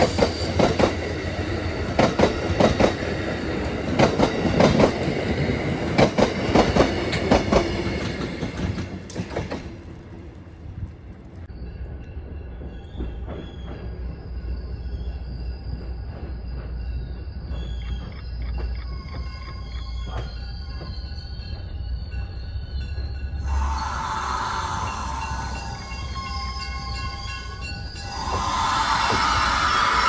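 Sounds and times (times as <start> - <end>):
train wheels clacking over rail joints: 0.0 - 10.2
distant train low rumble: 0.0 - 30.0.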